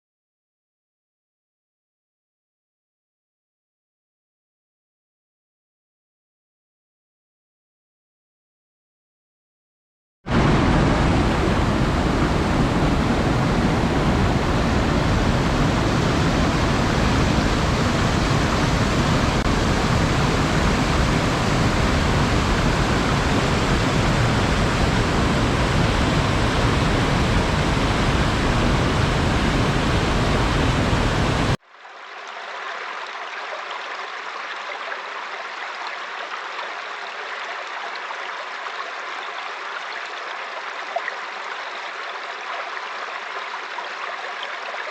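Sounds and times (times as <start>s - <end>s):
loud rushing water: 10.3s - 44.9s
thinner flow of water: 10.3s - 44.9s.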